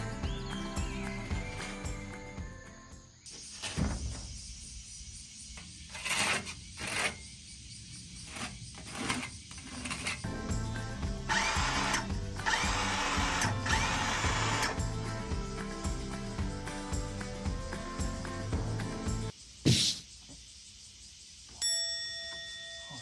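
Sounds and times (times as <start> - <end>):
background music: 0.0 - 3.2, 10.2 - 19.3
power tool running: 11.1 - 15.0.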